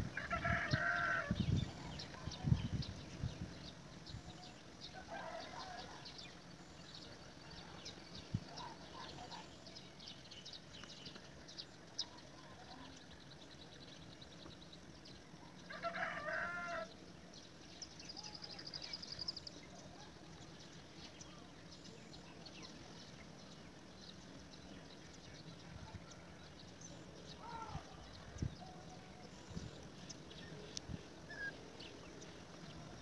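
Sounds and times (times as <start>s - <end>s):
faint bird calls: 27.3s - 33.0s.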